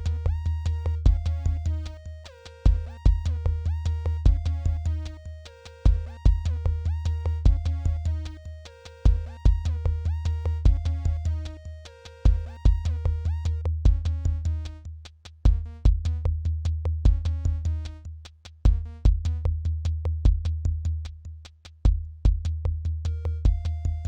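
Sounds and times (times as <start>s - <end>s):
sequenced synthesizer notes: 0.0s - 14.8s
low synth bass: 0.0s - 14.9s, 15.5s - 18.1s, 18.7s - 21.1s, 21.9s - 24.0s.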